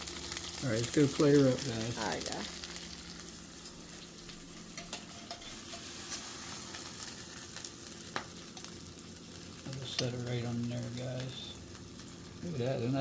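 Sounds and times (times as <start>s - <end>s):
eggs sizzling in a pan: 0.0s - 13.0s
spatula clicking and scraping pan: 4.7s - 6.8s.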